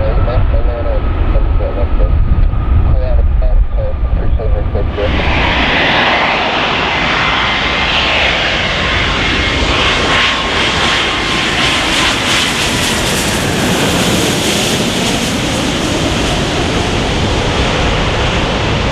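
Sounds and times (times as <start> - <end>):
jet engine rumble: 0.0 - 18.9
jet engine whine: 0.0 - 18.9.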